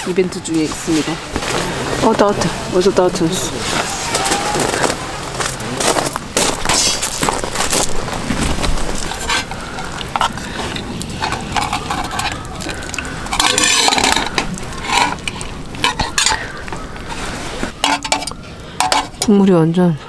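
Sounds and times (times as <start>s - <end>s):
spoon stirring and scraping pot: 5.8s - 19.4s
spoon clinking against pot: 9.0s - 19.4s.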